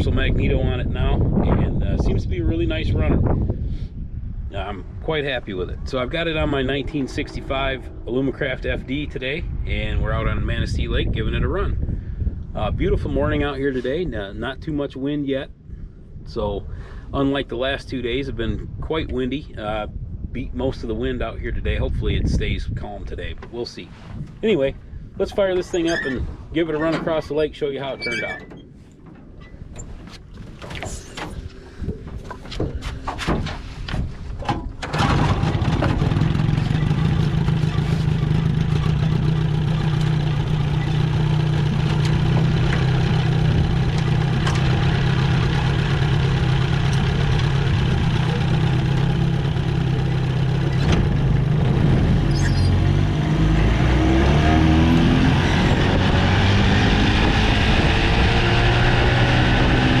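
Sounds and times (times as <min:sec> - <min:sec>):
outboard motor cranking: 0:34.4 - 0:51.9
outboard motor running: 0:35.0 - 0:52.1.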